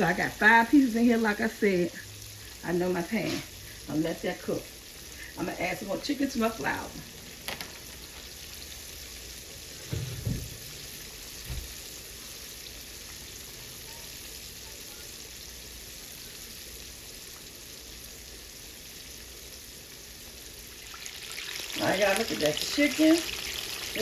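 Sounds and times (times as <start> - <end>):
chicken frying in a pan: 0.0 - 24.0
dull thumps: 9.8 - 10.7.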